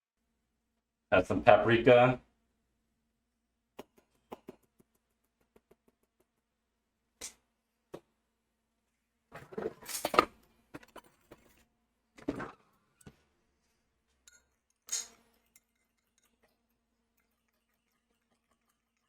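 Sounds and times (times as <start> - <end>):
dishes and utensils clinking: 14.2 - 16.6.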